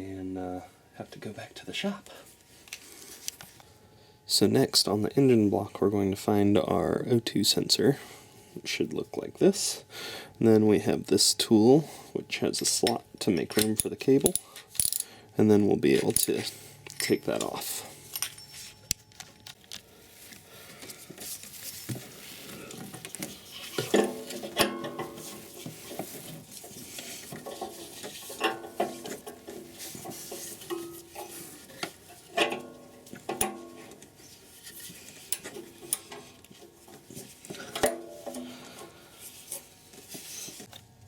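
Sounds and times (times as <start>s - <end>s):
metal tools clinking and scraping: 12.7s - 15.2s, 15.9s - 19.4s, 22.6s - 40.7s.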